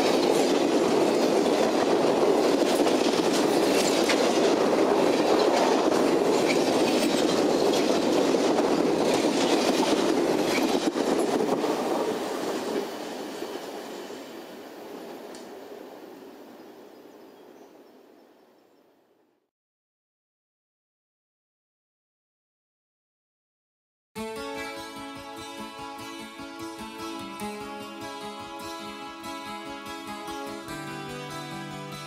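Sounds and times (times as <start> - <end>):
train wheels clattering: 0.0 - 14.0.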